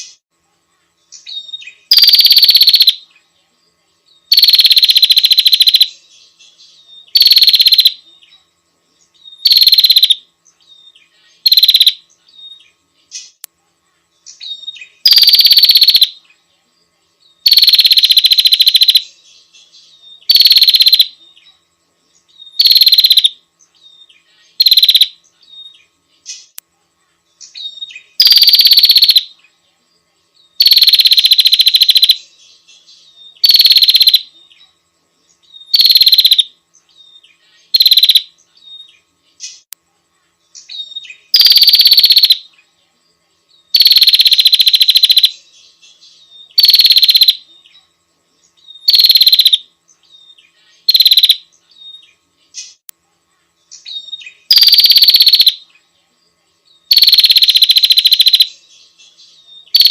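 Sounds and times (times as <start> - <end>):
buzzy rasping bird call: 1.9 - 3.0, 4.3 - 5.9, 7.1 - 8.0, 9.4 - 10.2, 11.4 - 12.0, 15.0 - 16.2, 17.4 - 19.0, 20.3 - 21.2, 22.6 - 23.4, 24.6 - 25.2, 28.2 - 29.3, 30.6 - 32.2, 33.4 - 34.3, 35.7 - 36.5, 37.7 - 38.3, 41.3 - 42.4, 43.7 - 45.3, 46.6 - 47.4, 48.9 - 49.6, 50.8 - 51.4, 54.5 - 55.6, 56.9 - 58.5.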